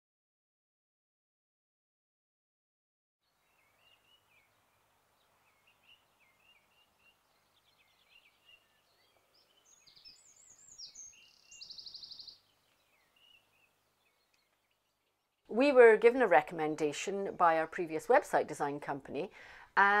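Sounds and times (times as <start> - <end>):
small birds chirping: 3.2 - 20.0
bird trill: 5.2 - 15.1.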